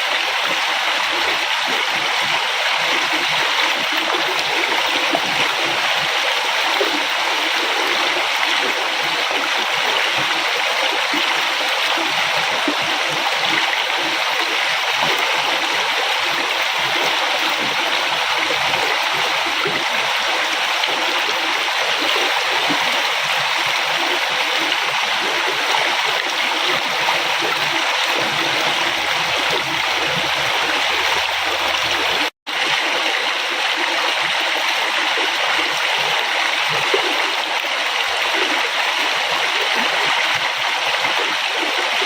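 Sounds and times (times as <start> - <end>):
river water flowing: 0.0 - 42.0.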